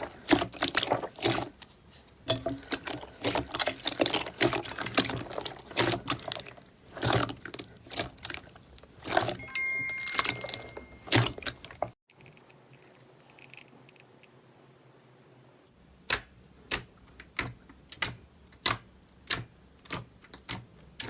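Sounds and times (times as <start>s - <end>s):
slime squelching by hand: 0.0s - 12.0s.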